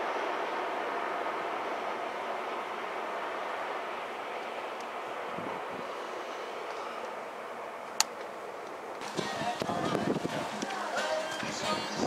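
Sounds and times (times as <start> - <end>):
train rushing past: 0.0 - 7.8.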